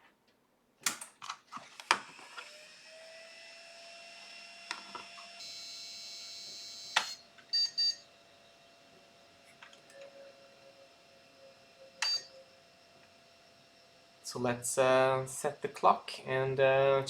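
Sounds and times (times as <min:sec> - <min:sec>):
computer fans humming: 0:02.9 - 0:17.0
short high beeps: 0:09.9 - 0:12.6.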